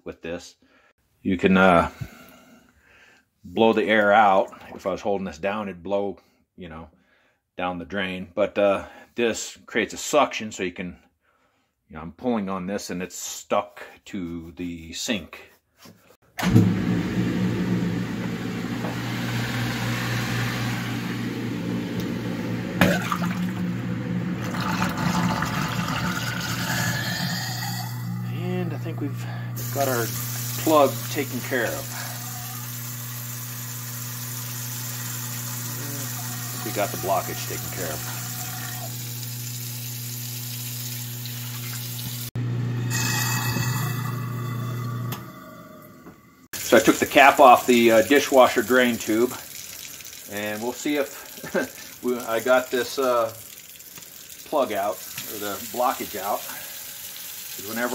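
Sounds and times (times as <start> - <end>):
garbage disposal humming: 16.3 - 57.9
water draining down sink: 22.7 - 28.2, 29.6 - 42.3, 46.6 - 57.9.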